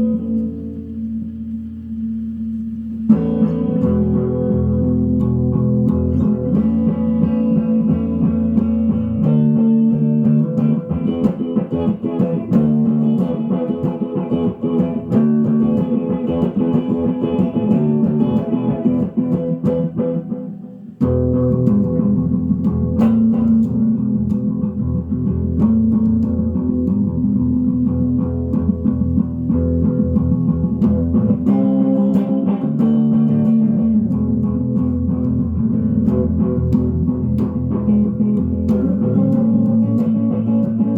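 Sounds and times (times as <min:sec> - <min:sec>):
electric guitar with tape echo: 0:00.0 - 0:40.9.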